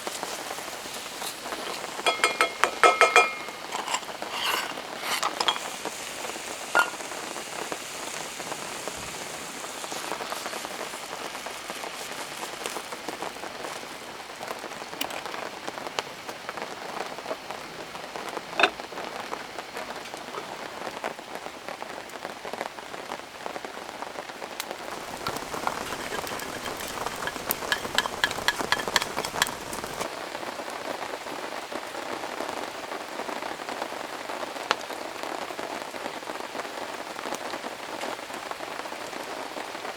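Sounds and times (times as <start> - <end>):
heavy rain pattering: 0.0 - 2.1, 5.6 - 39.9
quick ticks: 24.9 - 30.0.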